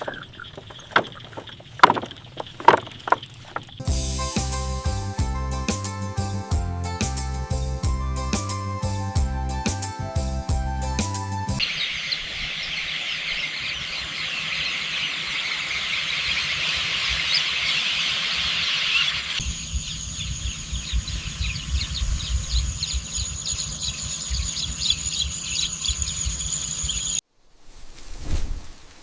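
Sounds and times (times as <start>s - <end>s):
insects chirping: 0.0s - 3.9s, 11.6s - 27.2s.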